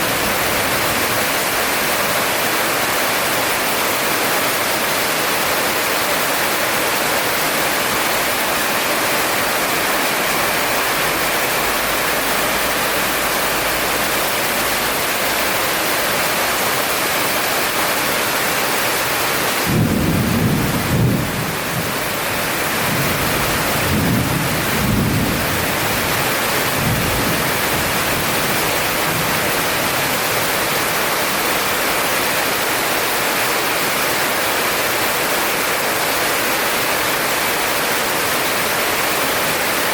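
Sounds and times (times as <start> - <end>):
heavy rain hissing: 0.0 - 39.9
thunder rumbling: 19.6 - 30.4.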